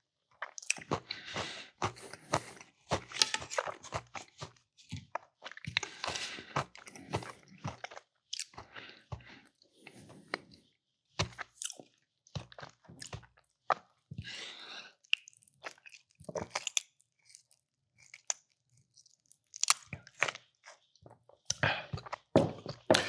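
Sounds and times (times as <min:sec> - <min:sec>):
person chewing food: 0:00.4 - 0:23.0.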